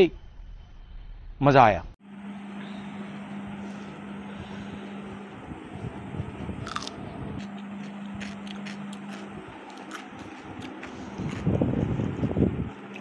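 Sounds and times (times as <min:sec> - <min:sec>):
steady low hum: 0:00.0 - 0:13.0
crunchy biting and chewing: 0:06.6 - 0:13.0.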